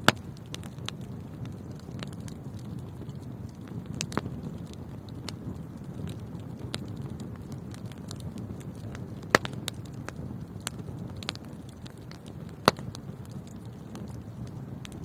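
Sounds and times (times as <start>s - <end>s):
sharp loud pops of fire: 0.0s - 2.0s, 6.0s - 14.2s
fire crackles: 0.0s - 15.0s
low rumble of flames: 0.0s - 15.0s.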